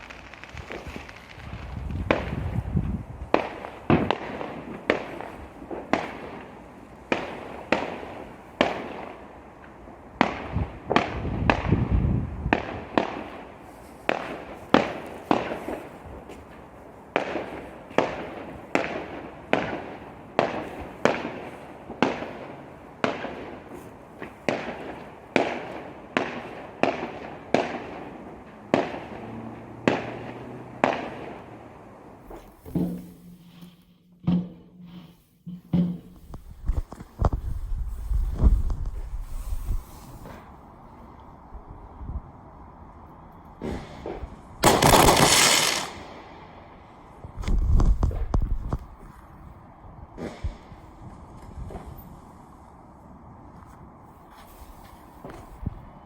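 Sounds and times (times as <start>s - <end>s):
fireworks bangs: 0.0s - 9.2s, 43.6s - 46.6s
low rumbling fireworks bursts: 0.0s - 56.0s.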